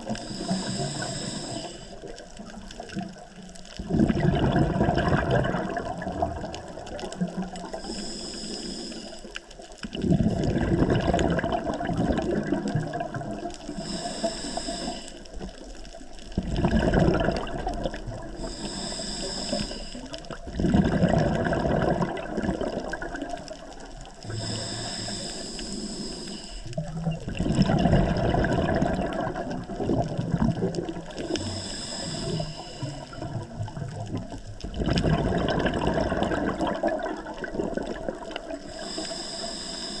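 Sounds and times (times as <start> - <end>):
rush of exhaled bubbles: 0.0 - 8.2, 9.0 - 25.2, 26.6 - 39.4
air hissing through regulator: 0.2 - 2.0, 7.8 - 9.2, 13.8 - 15.3, 18.4 - 20.1, 24.3 - 26.7, 31.3 - 33.2, 38.7 - 40.0.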